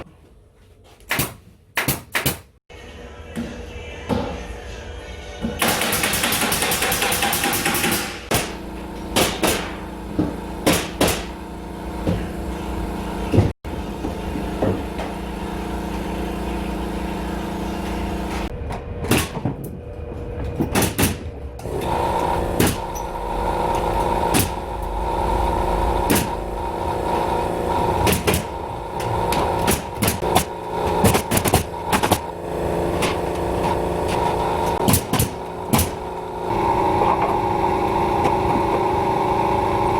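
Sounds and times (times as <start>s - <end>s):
nail gun firing: 1.1s - 2.5s, 5.6s - 8.6s, 9.2s - 9.8s, 10.6s - 11.4s, 22.6s - 22.9s, 28.0s - 28.5s, 29.6s - 32.2s, 34.8s - 36.0s
steady mechanical hum: 2.6s - 39.9s.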